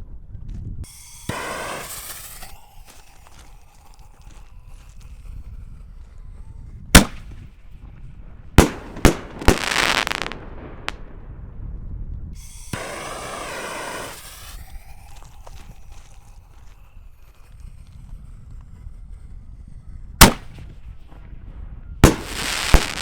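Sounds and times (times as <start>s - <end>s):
firework shells bursting: 0.8s - 5.4s, 7.0s - 7.6s, 8.5s - 11.2s, 12.4s - 18.2s, 20.2s - 21.0s, 22.0s - 23.0s
firework hiss: 0.8s - 6.2s, 7.0s - 7.6s, 8.6s - 11.0s, 12.4s - 21.0s, 22.0s - 23.0s.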